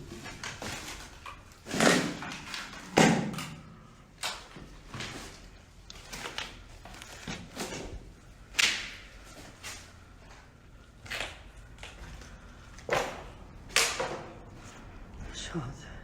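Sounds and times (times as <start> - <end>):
footsteps crunching over debris: 4.4 - 15.4.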